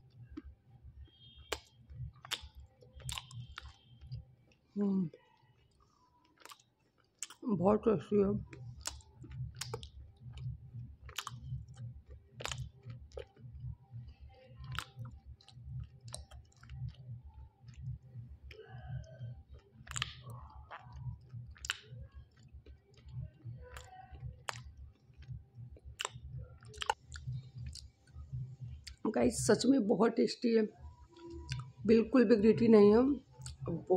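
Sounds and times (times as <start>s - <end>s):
closed-mouth chewing: 0.1s - 7.5s, 8.4s - 29.1s, 31.0s - 31.9s, 33.2s - 33.8s
wet mouth clicks: 1.2s - 4.2s, 5.1s - 7.5s, 8.4s - 29.0s, 31.2s - 31.8s, 33.3s - 33.7s.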